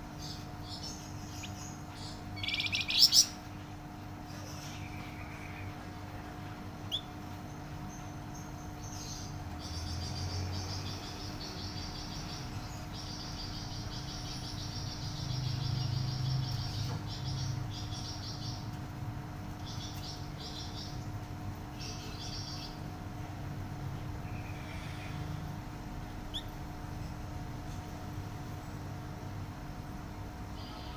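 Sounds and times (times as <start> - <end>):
low electrical hum: 0.0 - 30.9
songbird trilling: 0.2 - 3.4, 6.9 - 7.2, 26.3 - 26.6.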